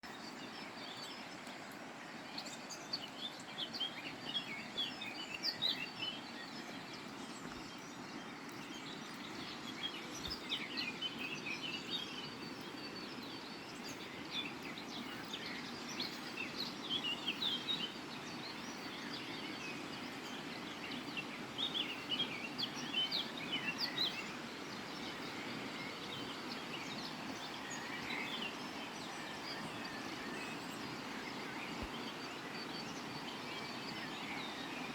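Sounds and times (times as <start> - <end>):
songbirds singing and chirping: 0.0 - 34.9.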